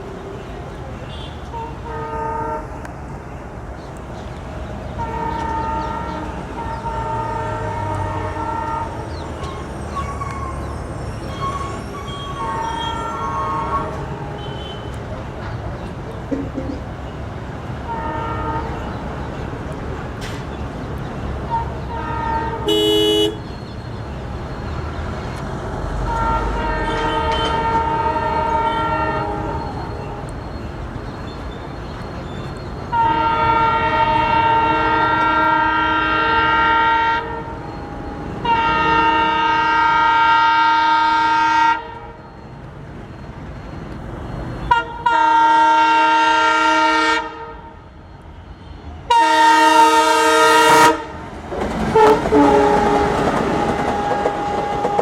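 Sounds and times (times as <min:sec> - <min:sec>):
locomotive horn blasts: 0:00.1 - 0:02.9, 0:04.9 - 0:15.2, 0:17.8 - 0:19.2, 0:21.4 - 0:23.6, 0:25.8 - 0:30.6, 0:32.8 - 0:42.5, 0:44.6 - 0:55.0.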